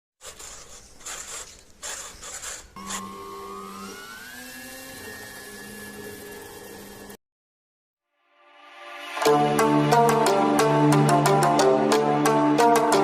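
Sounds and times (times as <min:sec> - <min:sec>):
electric motor whine: 0:01.0 - 0:07.2.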